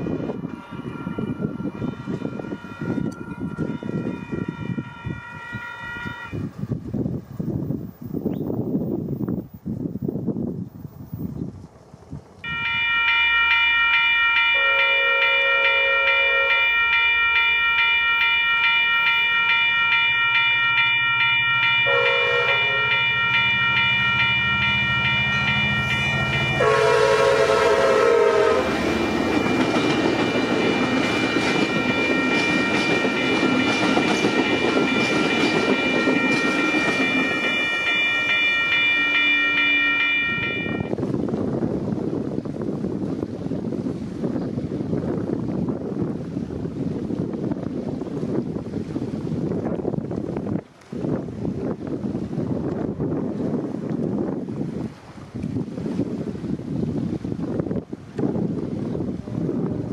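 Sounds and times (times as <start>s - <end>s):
train horn blasts: 0.0s - 6.6s, 12.5s - 41.0s
passing train rush and clatter: 0.0s - 59.9s.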